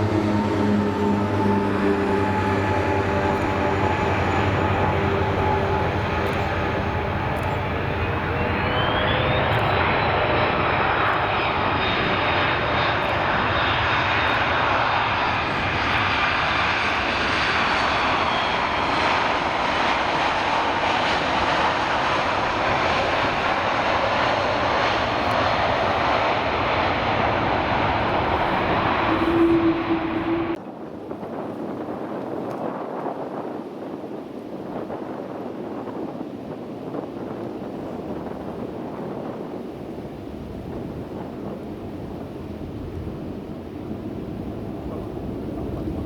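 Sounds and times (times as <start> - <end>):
high engine whine: 0.0 - 30.6
jet engines roaring: 0.0 - 33.9, 35.1 - 46.0.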